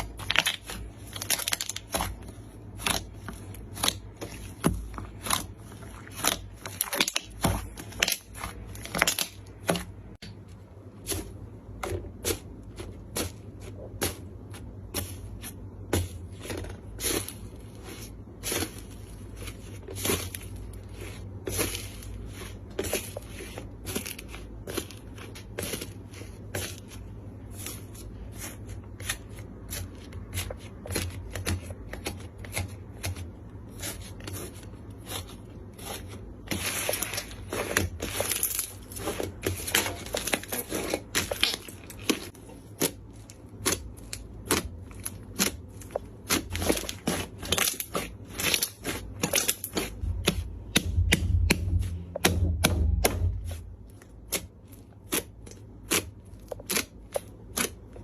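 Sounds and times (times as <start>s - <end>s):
slime popping and crackling: 0.0s - 9.8s.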